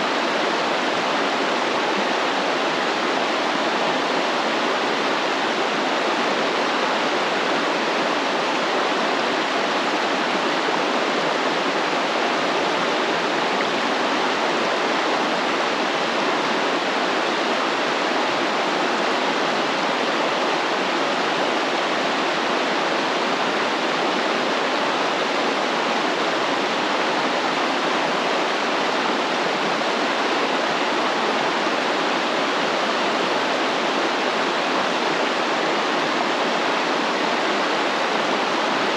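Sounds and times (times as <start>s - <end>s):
stream water flowing and splashing: 0.0s - 38.9s.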